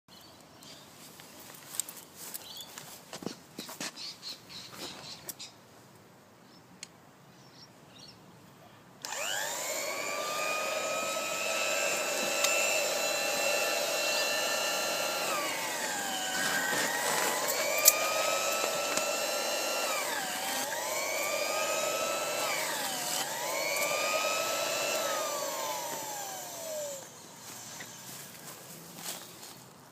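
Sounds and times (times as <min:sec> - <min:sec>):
electric cloth cutter whining: 0:09.0 - 0:28.4
handling noise: 0:14.5 - 0:20.2.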